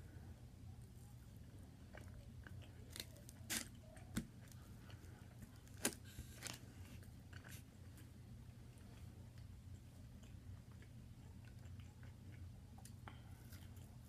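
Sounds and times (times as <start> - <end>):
chewing steak: 6.6 - 14.0.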